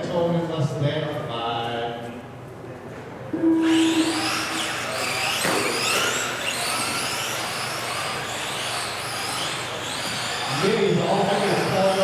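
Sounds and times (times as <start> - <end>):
electric motors whining: 3.4 - 12.0.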